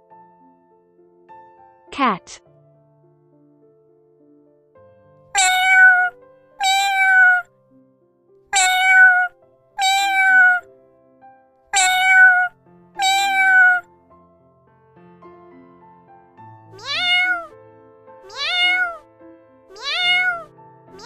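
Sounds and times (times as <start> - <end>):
soft background music: 0.0 - 9.8, 13.8 - 21.0
cat meowing: 5.3 - 7.5, 8.5 - 10.7, 11.7 - 13.9, 16.8 - 17.6, 18.2 - 19.0, 19.7 - 21.0.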